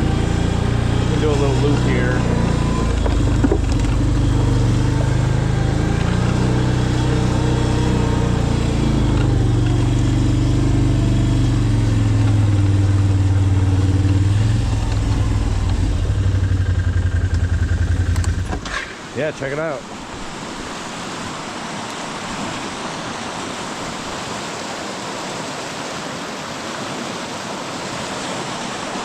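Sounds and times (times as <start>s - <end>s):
small vehicle engine running: 0.0s - 19.1s.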